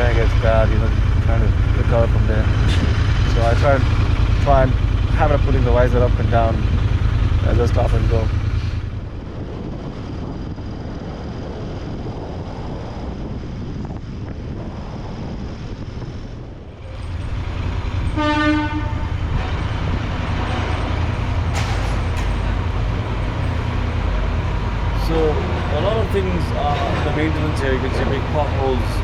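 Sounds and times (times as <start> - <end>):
motorcycle engine rumble: 0.0 - 29.0
road and wind noise: 0.0 - 29.0
horn toot: 17.9 - 21.6.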